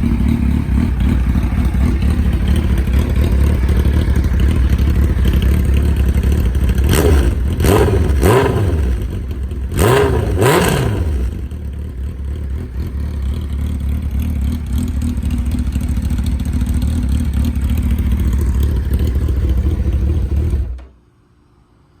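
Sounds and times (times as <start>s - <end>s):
engine throttle blips: 0.0s - 16.8s
motorcycle engine idling: 0.0s - 20.9s.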